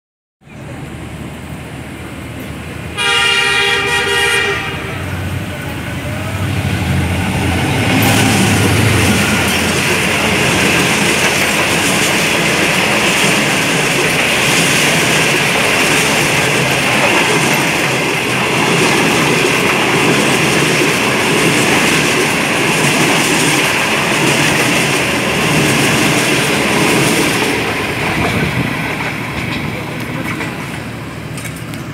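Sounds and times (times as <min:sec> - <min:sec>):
moving train rumble: 0:00.4 - 0:31.9
passing train rush: 0:00.4 - 0:31.9
diesel locomotive horn: 0:02.9 - 0:06.7.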